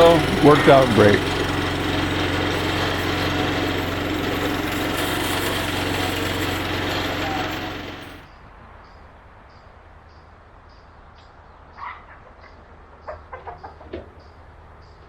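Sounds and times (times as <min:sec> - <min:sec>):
bandsaw mill engine running: 0:00.0 - 0:08.3.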